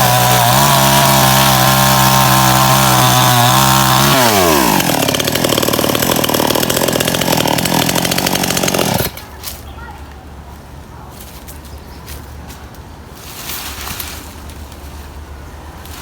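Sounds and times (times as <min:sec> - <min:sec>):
chainsaw cutting wood: 0:00.0 - 0:09.3.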